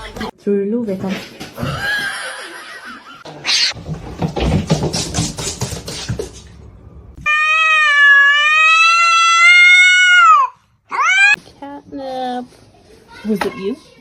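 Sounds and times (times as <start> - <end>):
cat meowing: 3.4 - 3.8, 7.2 - 11.4.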